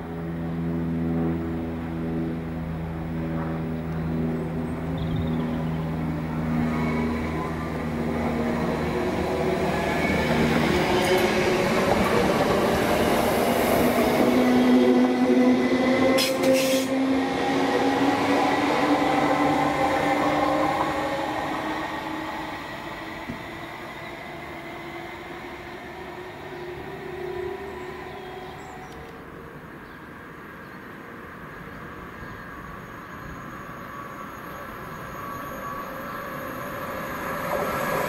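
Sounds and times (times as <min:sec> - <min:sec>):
electric train passing: 0:00.0 - 0:38.0
high-pitched squeal: 0:32.5 - 0:38.0.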